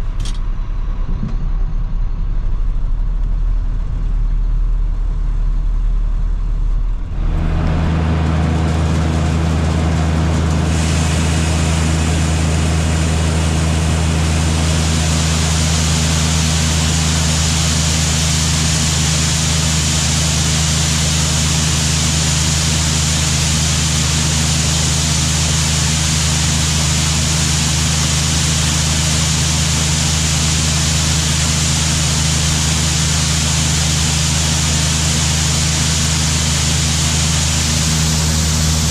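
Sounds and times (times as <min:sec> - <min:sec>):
farm machinery engine running: 0:00.0 - 0:38.9
rushing noise: 0:01.8 - 0:27.8.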